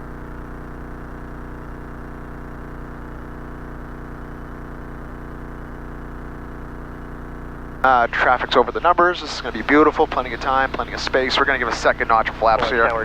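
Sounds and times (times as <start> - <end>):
propeller plane engine drone: 6.9 - 13.0.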